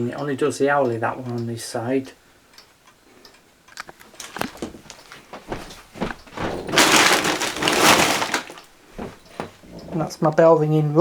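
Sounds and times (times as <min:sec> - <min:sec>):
loud rustling scrape: 0:05.6 - 0:08.6.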